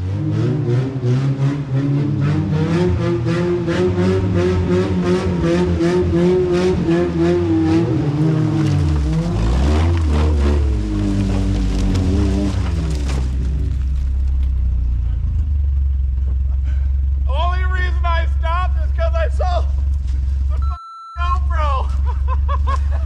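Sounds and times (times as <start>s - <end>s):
car engine revving hard: 0.0s - 13.2s.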